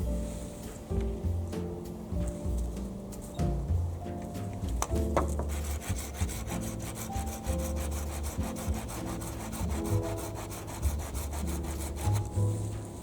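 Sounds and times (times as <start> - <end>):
hand saw cutting wood: 5.2 - 12.4.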